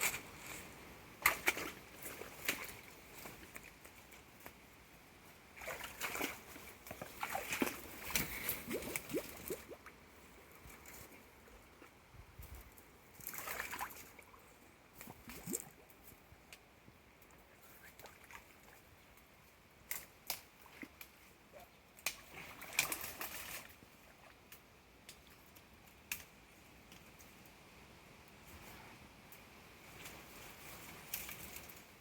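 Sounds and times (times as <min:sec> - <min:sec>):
water sloshing and splashing: 0:01.2 - 0:04.4, 0:05.5 - 0:09.9, 0:10.5 - 0:15.9, 0:22.2 - 0:24.4.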